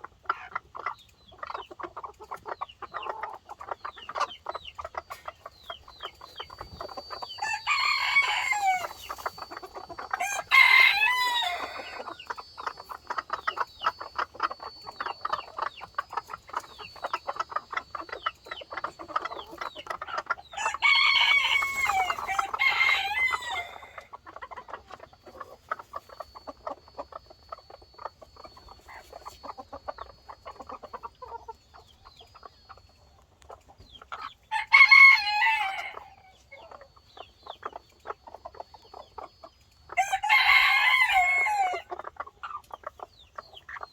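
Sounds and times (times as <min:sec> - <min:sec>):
chickens clucking: 0:00.0 - 0:43.9
rooster crowing: 0:07.3 - 0:09.0, 0:10.2 - 0:12.2, 0:20.5 - 0:24.1, 0:34.5 - 0:36.4, 0:40.0 - 0:41.9.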